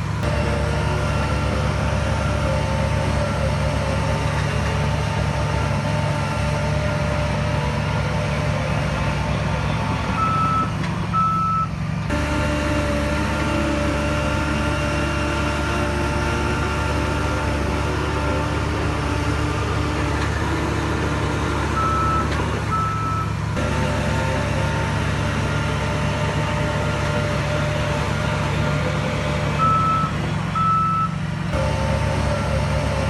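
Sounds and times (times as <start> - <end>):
heavy diesel machinery running: 0.0 - 33.0
reversing alarm beeping: 10.2 - 11.7, 21.8 - 23.3, 29.6 - 31.2.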